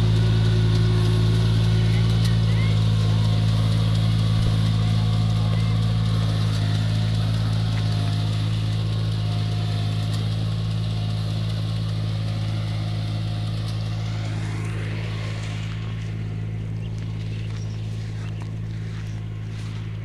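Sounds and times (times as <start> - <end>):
rice transplanter engine running: 0.0 - 20.0.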